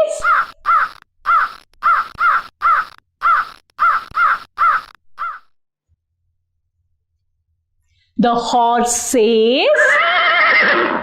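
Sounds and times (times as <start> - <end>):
crow cawing: 0.2 - 5.5.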